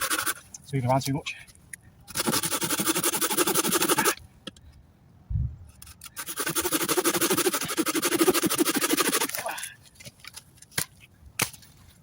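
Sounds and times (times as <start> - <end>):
hand saw cutting log: 0.0 - 0.4, 2.1 - 4.2, 6.0 - 9.5.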